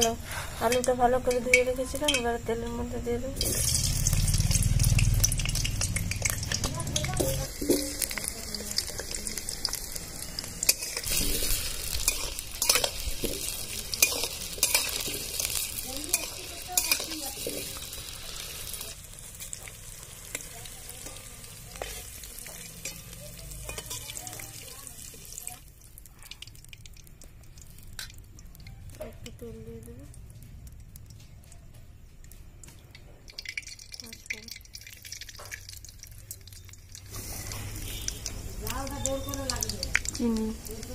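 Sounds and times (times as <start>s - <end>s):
potatoes sizzling in hot oil: 0.0s - 31.4s, 32.8s - 40.9s
metal spatula scraping a pan: 10.4s - 18.8s, 21.0s - 24.5s.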